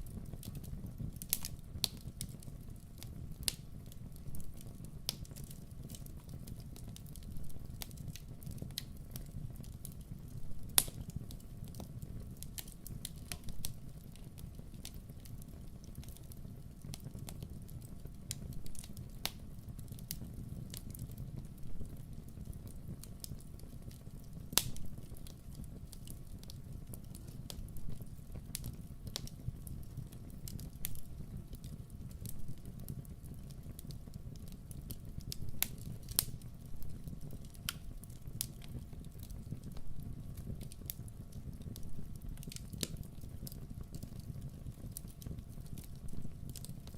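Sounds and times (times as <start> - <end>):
campfire crackling and popping: 0.0 - 46.9.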